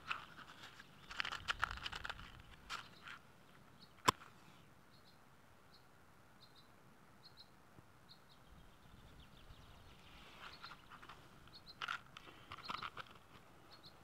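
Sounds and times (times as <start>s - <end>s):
hands handling a small box: 0.0s - 4.4s, 10.4s - 13.5s.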